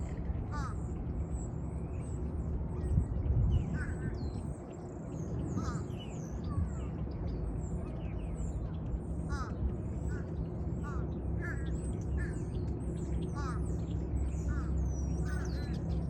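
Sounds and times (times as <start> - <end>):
wild birds chirping and calling: 0.5 - 1.0, 5.4 - 6.4, 9.3 - 16.0.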